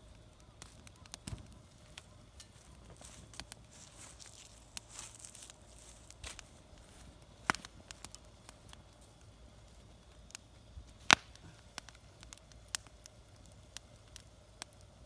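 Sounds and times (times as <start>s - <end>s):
faint fire hiss: 0.0s - 15.0s
wood fire crackling: 0.0s - 15.0s.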